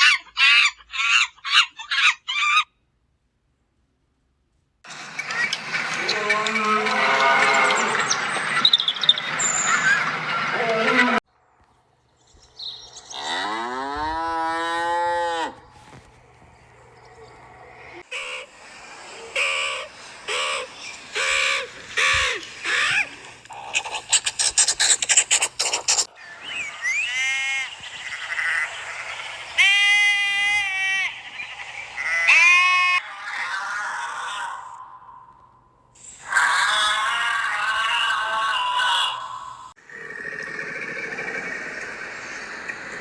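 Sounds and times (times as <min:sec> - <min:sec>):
animal calls: 0:00.0 - 0:02.7, 0:04.9 - 0:11.2, 0:12.8 - 0:35.3, 0:36.0 - 0:43.0.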